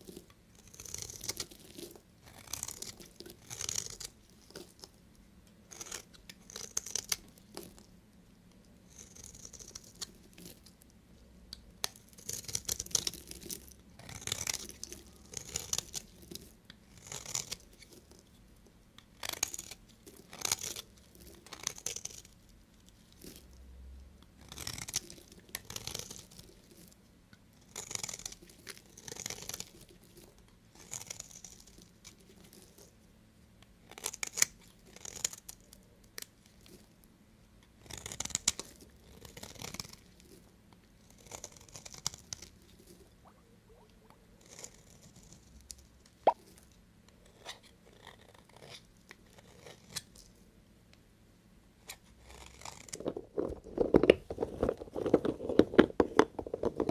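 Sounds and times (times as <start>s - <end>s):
knife cutting through soap: 5.7s - 7.2s.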